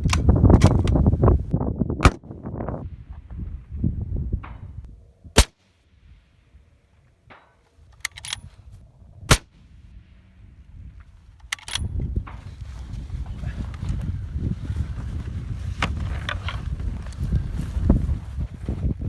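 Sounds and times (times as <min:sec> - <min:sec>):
wind buffeting microphone: 0:00.0 - 0:06.8, 0:07.8 - 0:19.0
rifle shots: 0:05.4 - 0:05.6, 0:09.3 - 0:09.5
sharp clicks: 0:07.9 - 0:08.4.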